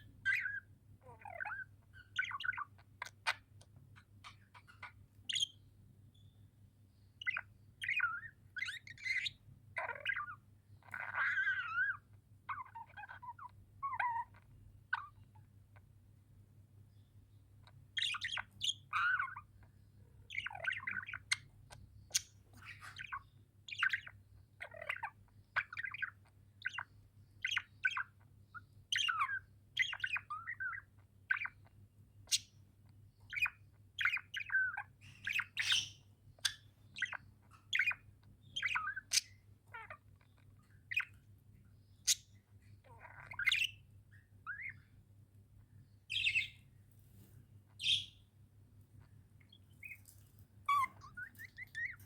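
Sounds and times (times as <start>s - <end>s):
budgies chirping and warbling: 0.0s - 6.4s, 7.0s - 15.9s, 16.9s - 52.0s.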